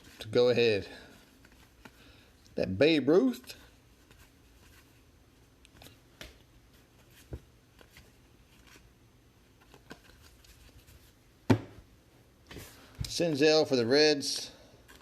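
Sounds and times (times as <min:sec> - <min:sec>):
trading cards being flipped: 0:09.5 - 0:11.1.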